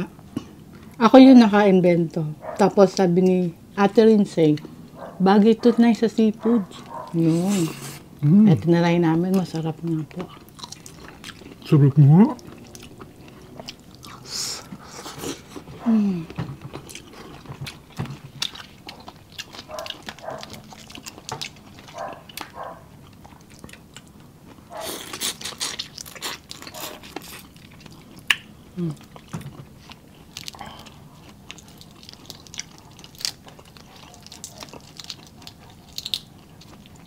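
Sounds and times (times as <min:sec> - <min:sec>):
wet chewing and lip smacks: 0:10.1 - 0:11.8, 0:12.4 - 0:15.7, 0:16.6 - 0:37.0
person humming: 0:14.9 - 0:16.4.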